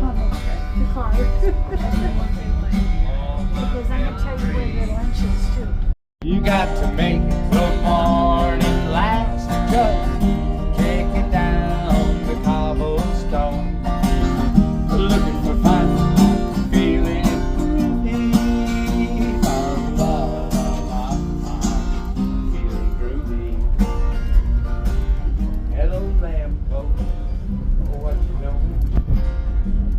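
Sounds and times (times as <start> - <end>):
acoustic guitar: 0.0 - 29.9
person singing: 6.2 - 13.7, 14.9 - 23.6.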